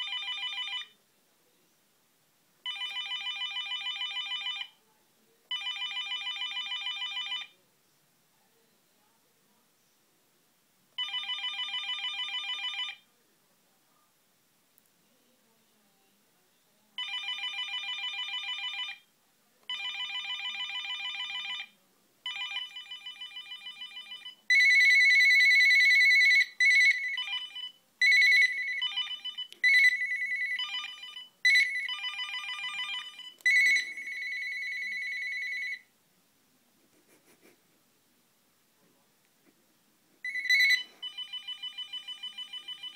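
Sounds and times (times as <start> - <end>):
steady telephone ring: 22.3 - 35.8, 40.2 - 42.9
telephone ringing warbling: 22.3 - 35.8, 40.3 - 42.9.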